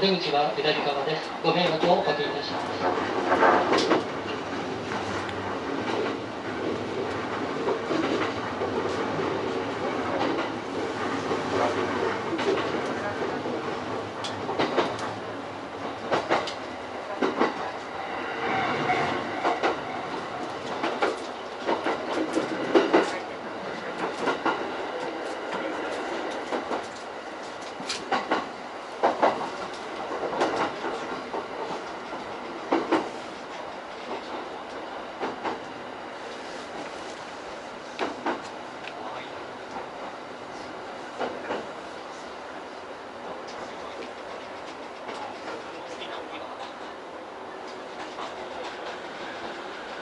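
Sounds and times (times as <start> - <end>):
train wheels clacking over rail joints: 2.8 - 4.4, 13.9 - 15.2, 15.8 - 17.7, 18.7 - 23.2, 25.3 - 33.2.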